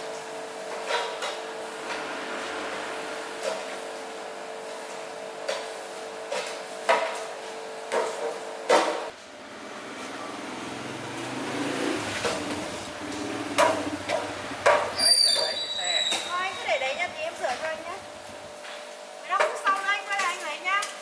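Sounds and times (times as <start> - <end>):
tools knocking and clanking: 13.6 - 16.3
steady hum: 16.3 - 18.6.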